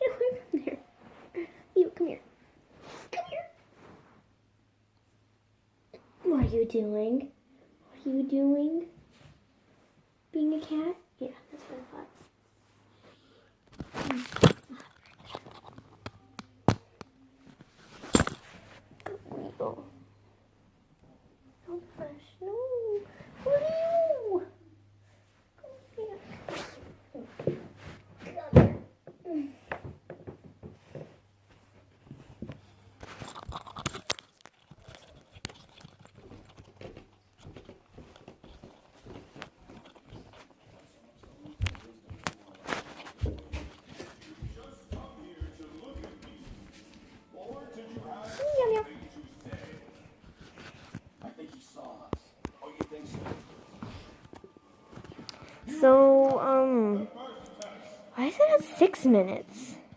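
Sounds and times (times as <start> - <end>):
irregular rustling: 17.4 - 19.4, 25.0 - 28.5, 30.3 - 55.7
faint rustling: 17.4 - 20.2, 24.9 - 28.5.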